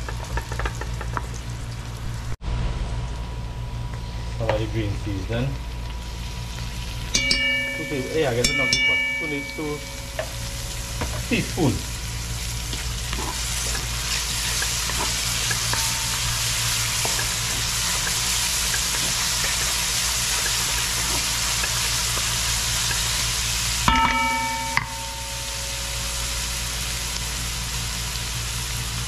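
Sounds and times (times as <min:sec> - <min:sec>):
onion and garlic sizzling in oil: 0:00.0 - 0:29.0
metal clang: 0:07.2 - 0:11.3, 0:23.9 - 0:26.0.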